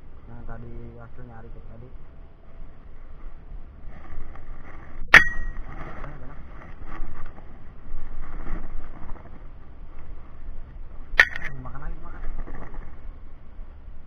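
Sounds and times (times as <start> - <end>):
faint background hiss: 0.0 - 14.0
metallic clink with ringing: 5.2 - 5.6, 11.2 - 11.6.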